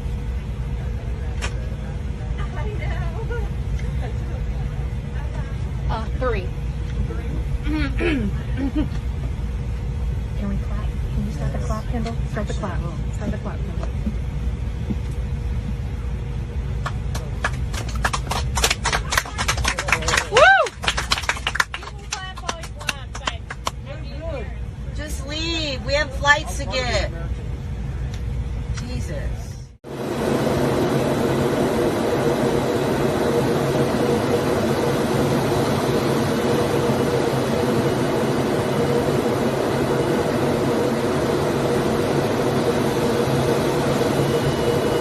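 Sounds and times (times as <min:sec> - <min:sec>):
airliner cabin rumble: 0:00.0 - 0:45.0
people clapping: 0:16.8 - 0:23.9.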